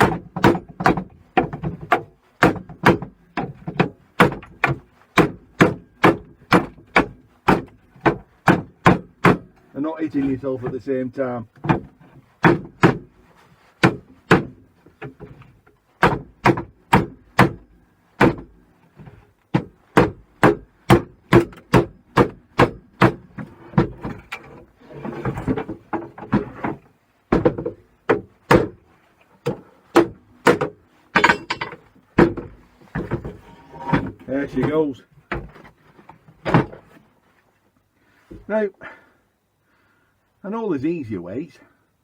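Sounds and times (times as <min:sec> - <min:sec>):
scraping and rattling: 0:23.4 - 0:27.0, 0:31.0 - 0:37.1.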